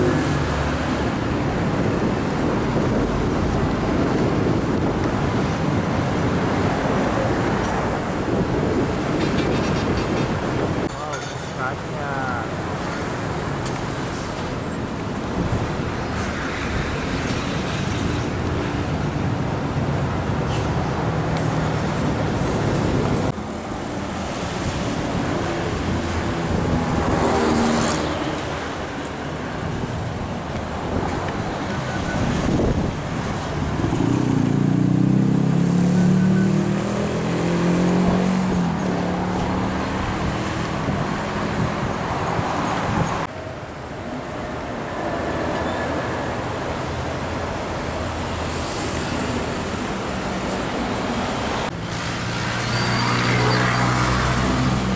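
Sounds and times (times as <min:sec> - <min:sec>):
heavy trucks droning past: 0:00.0 - 0:43.3, 0:47.2 - 0:54.9
road traffic: 0:00.0 - 0:54.9.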